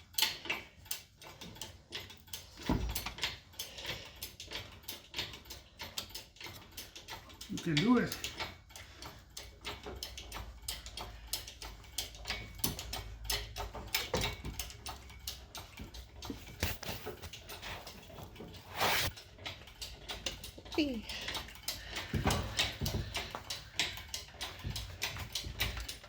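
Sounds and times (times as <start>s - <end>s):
hoist clicks and metallic knocks: 0.0s - 26.0s.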